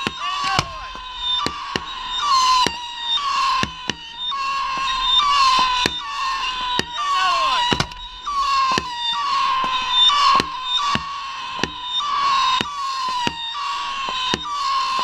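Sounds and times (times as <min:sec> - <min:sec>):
falling firework whistle: 0:00.0 - 0:15.0
fireworks bangs: 0:00.0 - 0:15.0
steady high whistle: 0:00.0 - 0:15.0.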